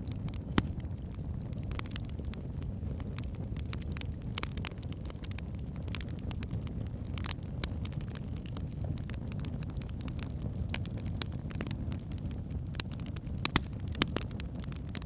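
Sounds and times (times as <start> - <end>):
burning logs crackling and popping: 0.0 - 15.0
flames rumbling: 0.0 - 15.0.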